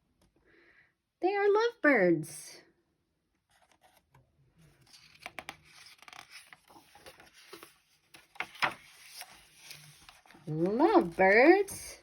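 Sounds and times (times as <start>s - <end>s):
paper rustling: 3.4s - 12.0s
book pages turning clicks: 4.8s - 10.4s.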